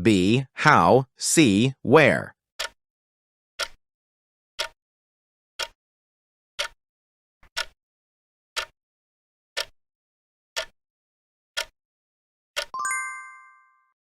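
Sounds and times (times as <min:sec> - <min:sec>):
timer ticking: 0:00.0 - 0:02.8, 0:03.6 - 0:03.8, 0:07.5 - 0:07.8, 0:08.6 - 0:08.8, 0:10.6 - 0:10.8, 0:12.6 - 0:12.8
bell chime: 0:12.8 - 0:14.0.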